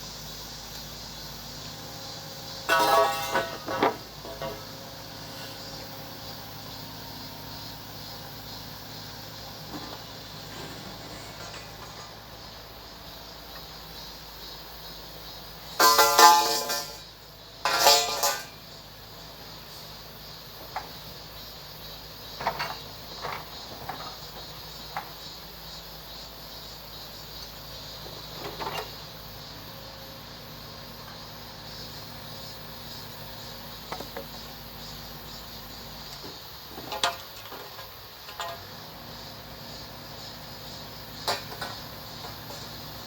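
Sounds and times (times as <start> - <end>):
knocks and clanks: 2.7 - 4.8, 15.8 - 18.5, 22.4 - 24.2, 36.2 - 38.7, 41.2 - 42.7.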